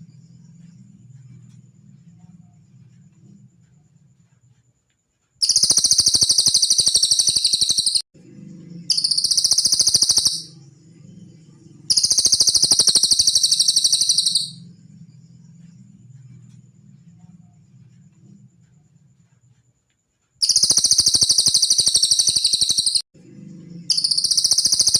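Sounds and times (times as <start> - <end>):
faint low hum: 0.0 - 5.4, 8.2 - 20.4, 23.2 - 24.9
bird trilling rapidly: 5.4 - 8.0, 8.9 - 10.6, 11.9 - 14.6, 20.4 - 23.0, 23.9 - 24.9.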